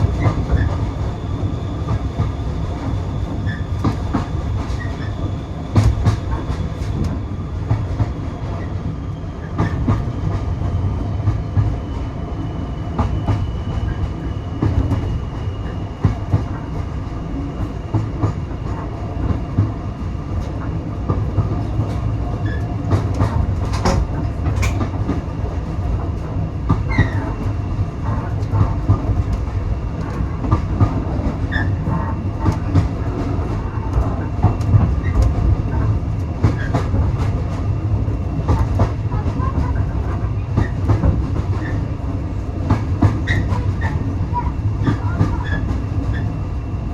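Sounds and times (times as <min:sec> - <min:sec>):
train carriage low rumble: 0:00.0 - 0:46.9
wheels clicking on track: 0:20.4 - 0:27.5.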